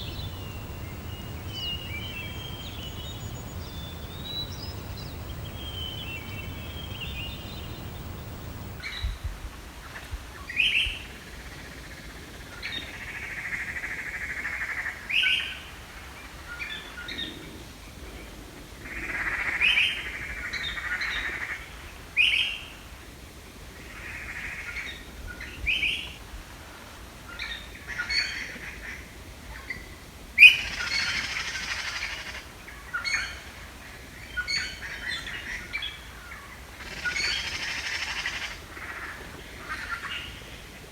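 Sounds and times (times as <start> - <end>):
birds chirping and chattering: 0.0 - 8.8.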